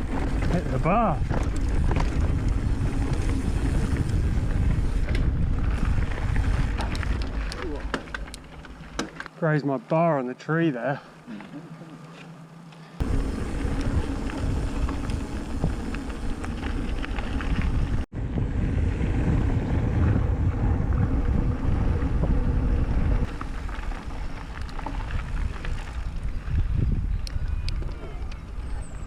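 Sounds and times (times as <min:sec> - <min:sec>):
wind buffeting microphone: 0:00.0 - 0:07.9, 0:13.0 - 0:29.0
bike tyre noise: 0:00.0 - 0:10.0, 0:10.9 - 0:29.0
bike rattling clicks: 0:01.2 - 0:09.4.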